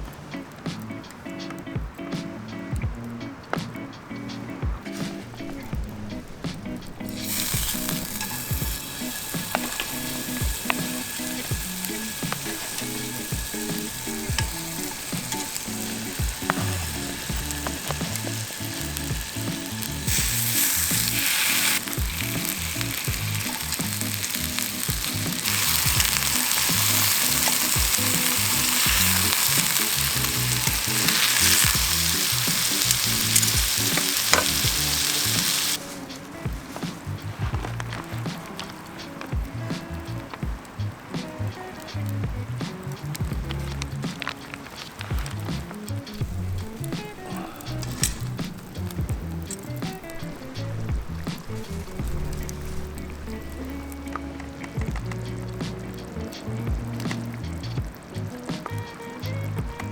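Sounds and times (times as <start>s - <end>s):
food sizzling in a pan: 4.9s - 59.9s.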